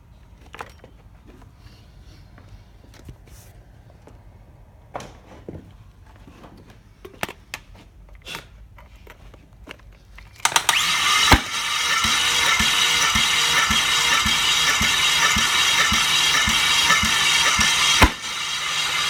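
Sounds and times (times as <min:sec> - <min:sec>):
engine cranking on starter: 0:10.4 - 0:19.0.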